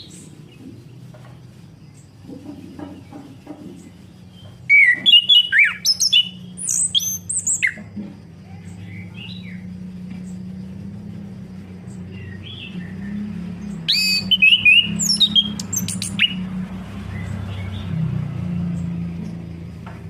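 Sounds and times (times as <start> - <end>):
steady low hum: 0.0 - 20.0
thrush singing: 8.6 - 19.2.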